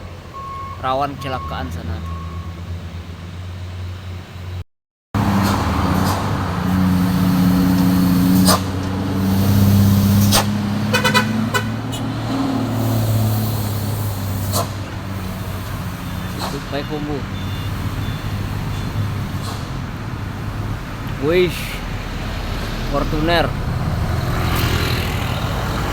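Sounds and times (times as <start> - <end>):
heavy truck diesel engines droning: 0.0 - 4.6, 5.2 - 25.9
vehicle horn toots: 10.8 - 12.3, 16.0 - 19.2.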